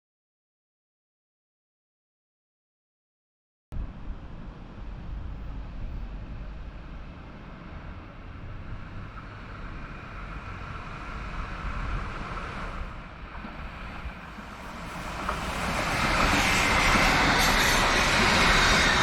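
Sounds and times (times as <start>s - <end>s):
low outdoor rumble: 3.8s - 14.5s
wind buffeting microphone: 3.8s - 19.0s
approaching train rail noise: 3.9s - 19.0s.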